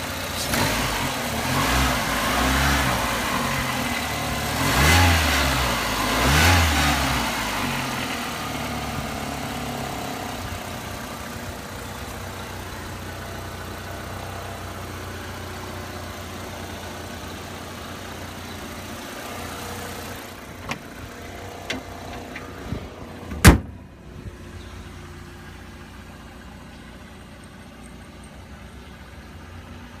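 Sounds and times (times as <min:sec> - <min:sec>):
car engine revving and idling: 0:00.0 - 0:30.0
car hood slamming shut: 0:21.6 - 0:23.9.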